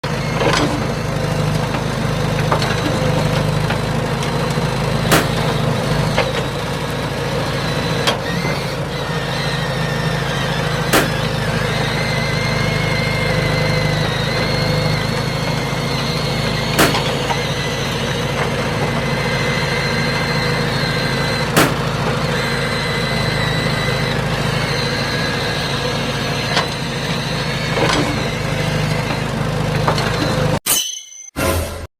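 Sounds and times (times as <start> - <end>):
toy motor humming: 5.0 - 29.3.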